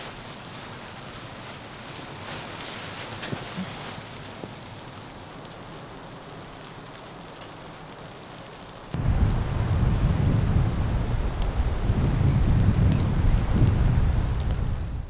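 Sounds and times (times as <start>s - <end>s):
soft steady hiss of snow: 0.0s - 15.0s
faint ticking of precipitation: 0.5s - 15.0s
low rumbling wind gusts: 9.0s - 15.0s.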